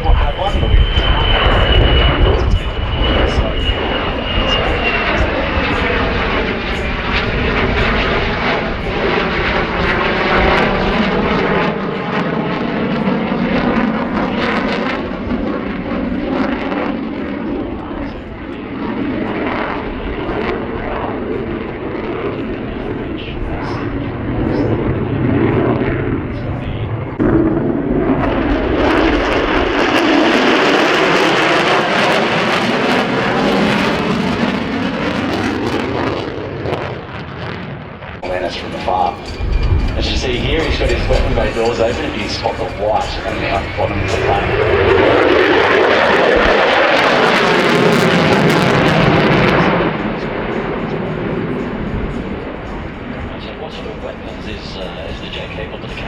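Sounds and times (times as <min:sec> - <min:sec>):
fighter jet roar: 0:00.0 - 0:16.3, 0:38.2 - 0:52.4.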